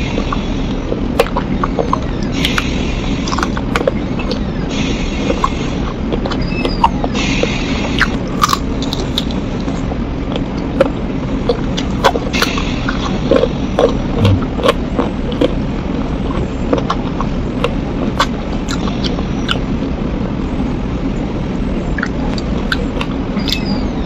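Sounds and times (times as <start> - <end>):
biting and wet chewing: 0.0 - 4.6, 5.2 - 19.9, 22.0 - 23.7
sharp mouth clicks: 10.4 - 15.6
hissy mouth noise: 12.3 - 14.9.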